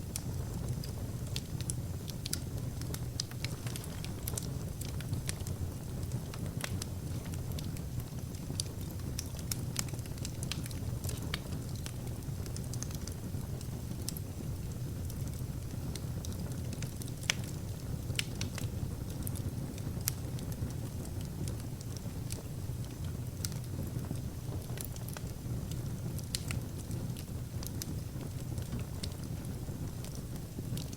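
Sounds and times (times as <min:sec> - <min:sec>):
burning logs crackling and popping: 0:00.0 - 0:30.9
wood fire flames rumbling: 0:00.0 - 0:30.9.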